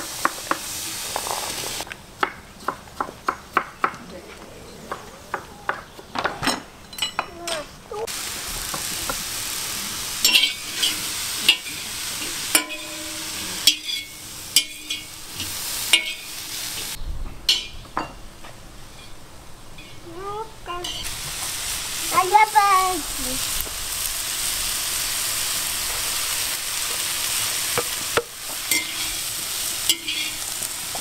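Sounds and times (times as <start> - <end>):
sausage sizzling: 0.0 - 1.9, 7.3 - 17.7, 19.7 - 31.0
metal spoon scraping pot: 29.9 - 30.4.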